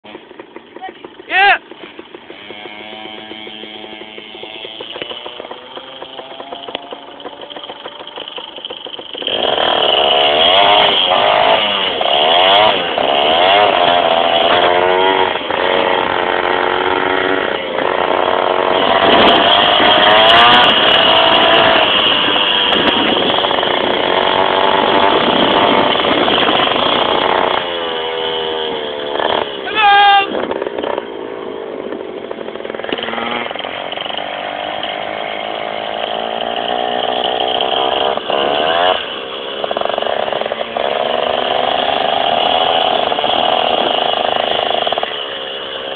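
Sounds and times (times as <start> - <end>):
two-stroke motorbike engine revving: 0.0 - 45.9.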